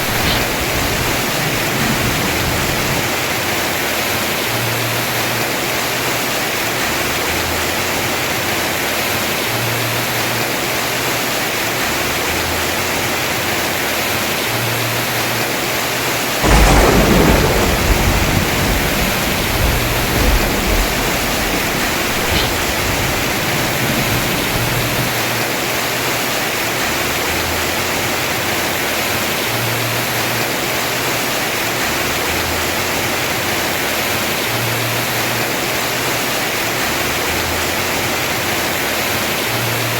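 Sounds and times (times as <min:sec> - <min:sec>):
thunder clap rumbling: 0:00.0 - 0:04.6, 0:16.4 - 0:25.8
heavy rain on roof: 0:00.0 - 0:39.9.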